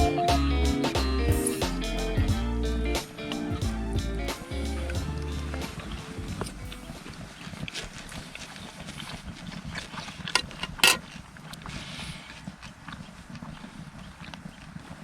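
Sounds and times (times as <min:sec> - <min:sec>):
hard objects clicking and knocking: 0:10.3 - 0:11.0.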